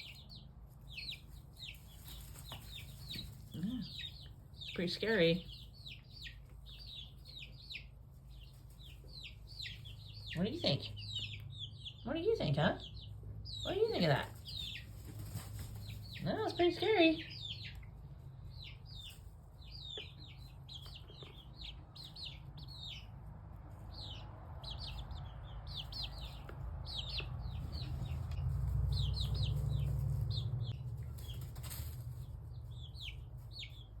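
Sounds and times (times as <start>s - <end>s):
chicks peeping: 0.0s - 34.0s
low rumble: 21.6s - 33.8s.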